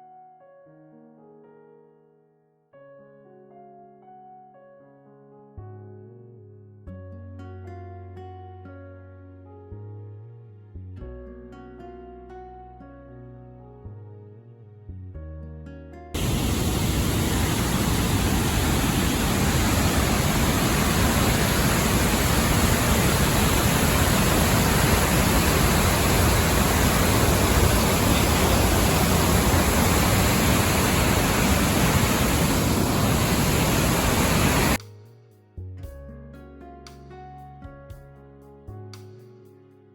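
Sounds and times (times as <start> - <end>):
waterfall roaring: 16.2 - 34.8.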